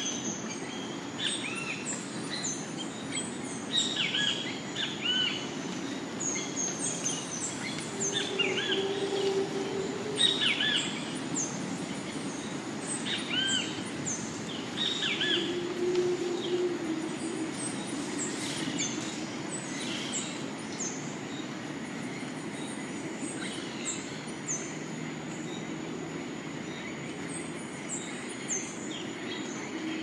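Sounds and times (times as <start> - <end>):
steady rushing background: 5.5 - 13.0
birds calling: 6.0 - 20.4
low droning tone: 7.5 - 11.0, 15.2 - 19.2.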